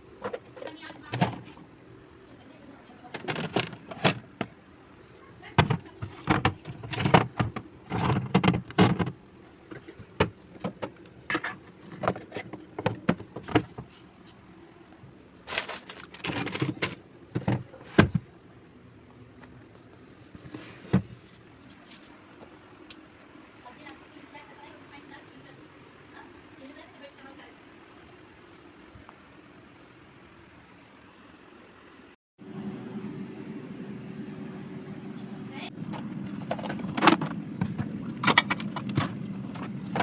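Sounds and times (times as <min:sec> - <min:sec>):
jars clinking and rattling: 0:03.1 - 0:04.7.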